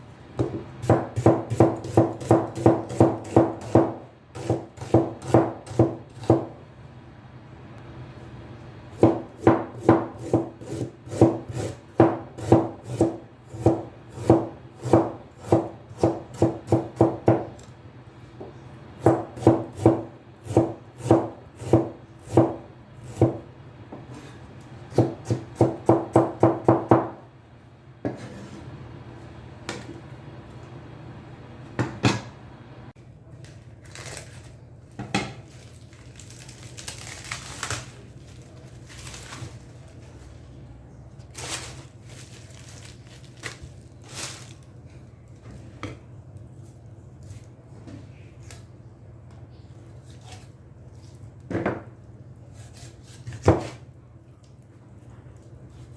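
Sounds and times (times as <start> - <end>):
knife chopping on wooden board: 0.4 - 6.6, 9.0 - 17.6, 19.0 - 23.4, 24.9 - 27.2, 53.0 - 53.8.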